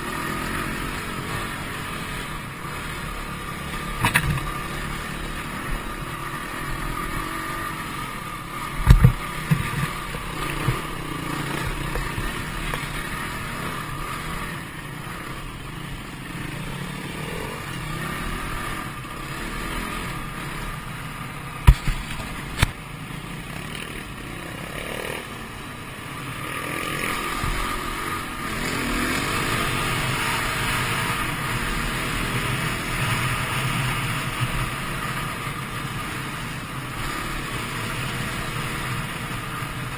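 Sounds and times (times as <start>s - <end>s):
dirt bike engine revving: 0.0s - 22.7s, 23.4s - 39.9s
sharp thumps: 8.8s - 10.9s, 21.6s - 22.8s.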